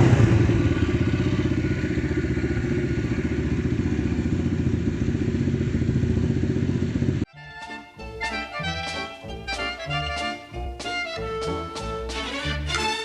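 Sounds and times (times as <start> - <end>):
pit bike engine running: 0.0 - 7.3
music: 7.3 - 13.0.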